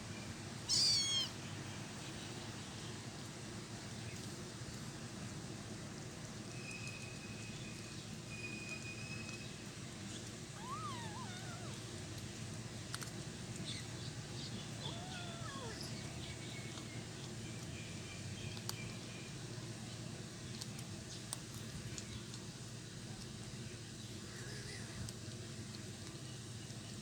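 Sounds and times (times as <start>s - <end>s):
kittens mewing: 0.7s - 1.4s, 10.6s - 12.0s, 14.7s - 16.0s.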